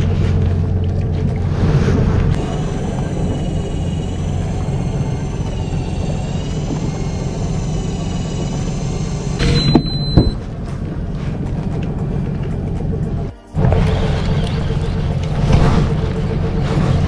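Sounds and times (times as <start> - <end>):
boat engine drone: 0.0 - 17.0
burst of noise with high tone: 2.4 - 10.4.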